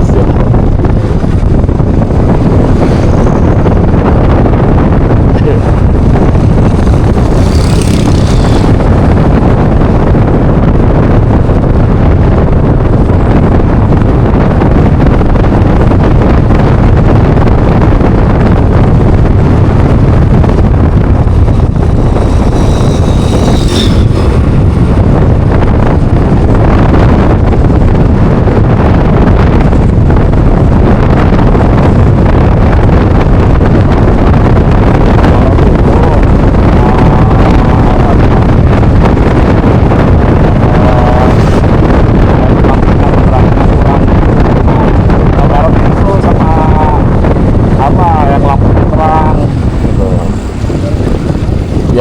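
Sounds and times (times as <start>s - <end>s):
road noise: 0.0s - 52.0s
wind rushing over microphone: 0.0s - 52.0s
scooter engine running: 5.8s - 10.2s, 19.4s - 26.7s
high-pitched squeal: 6.4s - 9.0s, 20.6s - 25.4s.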